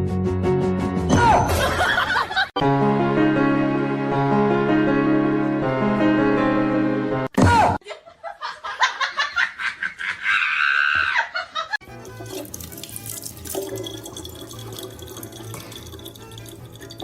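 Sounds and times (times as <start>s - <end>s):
irregular splashing: 11.9s - 17.0s
steady running water: 11.9s - 17.0s.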